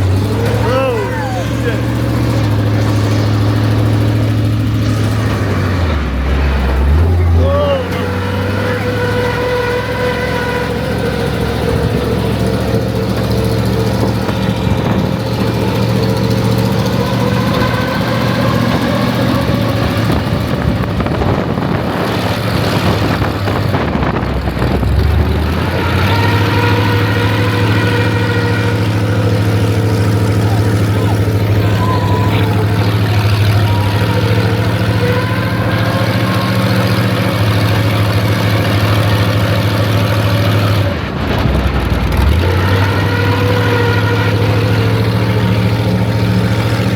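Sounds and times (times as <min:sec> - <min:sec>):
truck engine running: 0:00.0 - 0:46.9.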